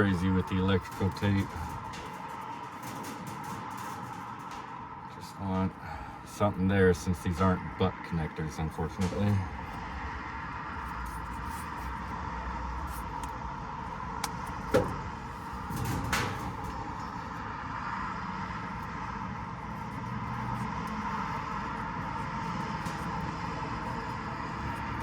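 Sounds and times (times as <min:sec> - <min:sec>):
electrical tape rasp: 0:00.0 - 0:05.8, 0:10.7 - 0:17.5, 0:18.4 - 0:25.0.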